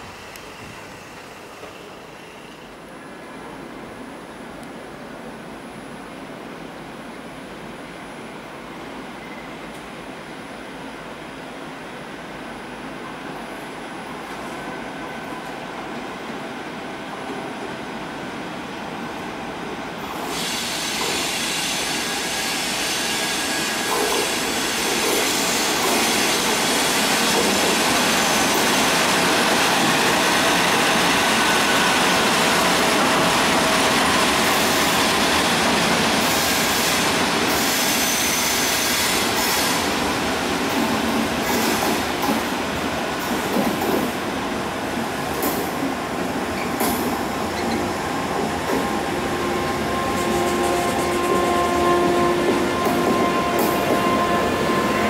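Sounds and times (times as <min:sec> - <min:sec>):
train running gear rushing: 0:20.1 - 0:55.0
faint wheel squeal: 0:47.6 - 0:47.9.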